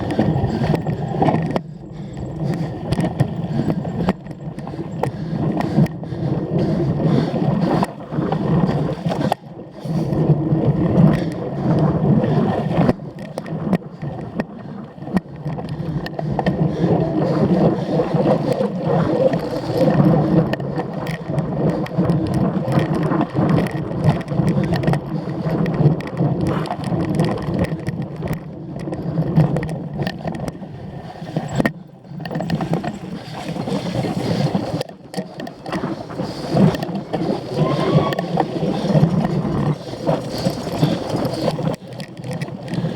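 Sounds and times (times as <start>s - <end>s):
wind and tyres rumbling: 0.0s - 42.9s
bike chain and frame rattling: 38.8s - 42.9s.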